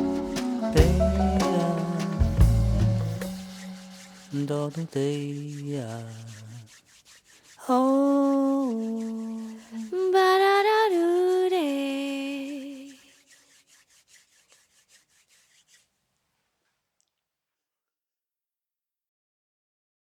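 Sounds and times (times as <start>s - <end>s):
person humming long notes: 0.0s - 4.8s.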